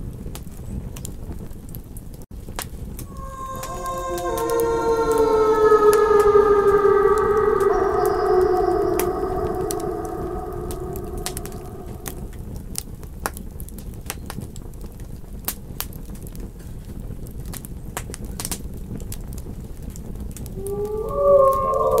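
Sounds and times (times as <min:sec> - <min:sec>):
wolf howling: 0:03.0 - 0:12.4, 0:20.5 - 0:22.0.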